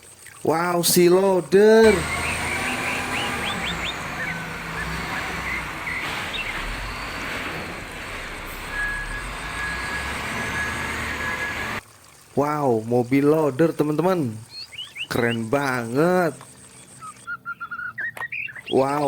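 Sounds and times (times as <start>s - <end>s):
bird chirps: 1.8s - 11.8s, 14.4s - 19.0s
vehicle engine running: 1.8s - 11.8s.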